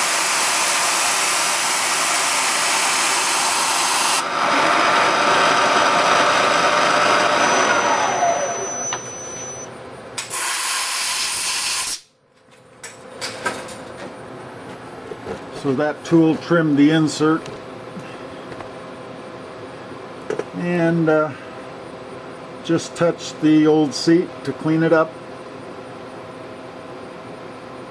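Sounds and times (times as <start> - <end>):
power tool running: 0.0 - 12.0
loud burst of hiss: 10.3 - 12.1.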